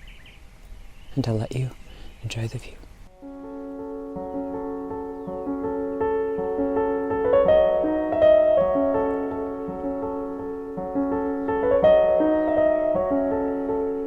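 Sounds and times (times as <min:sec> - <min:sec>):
gentle solo piano: 0:03.2 - 0:14.0.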